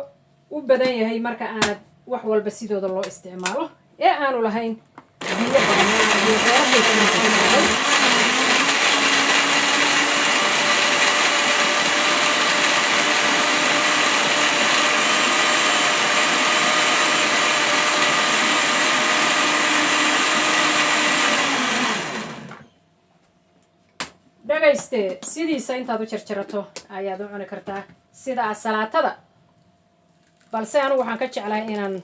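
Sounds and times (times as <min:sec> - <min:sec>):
electric blender grinding: 0:05.2 - 0:22.6.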